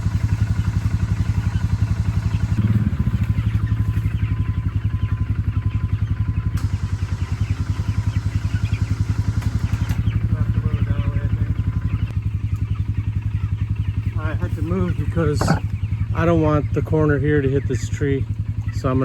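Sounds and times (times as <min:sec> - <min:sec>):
small engine chugging: 0:00.0 - 0:19.0.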